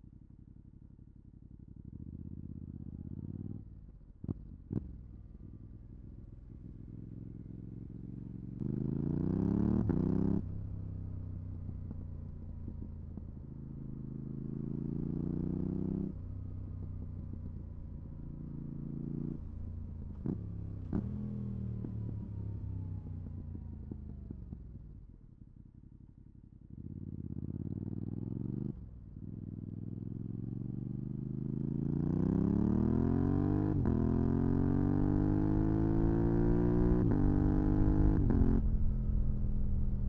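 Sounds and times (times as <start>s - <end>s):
motorcycle engine revving: 8.0s - 10.6s, 13.8s - 17.8s, 26.7s - 40.0s.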